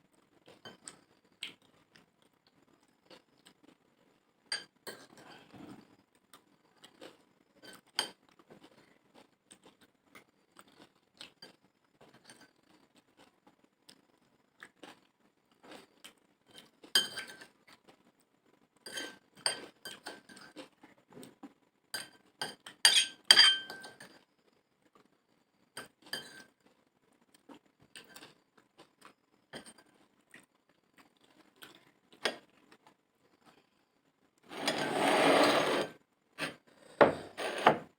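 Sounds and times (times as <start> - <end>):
spoon clinking on a plate: 17.0 - 17.4, 22.0 - 24.2, 25.8 - 26.5.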